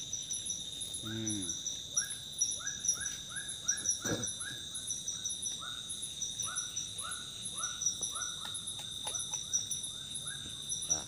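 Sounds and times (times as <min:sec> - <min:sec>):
insects buzzing and chirping: 0:00.0 - 0:11.0.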